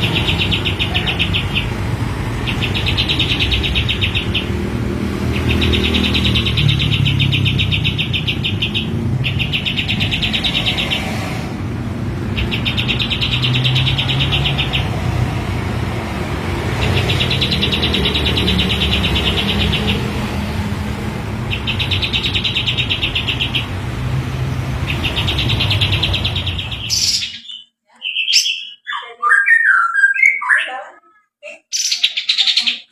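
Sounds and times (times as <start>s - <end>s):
songbird rattling trills: 12.2s - 15.2s.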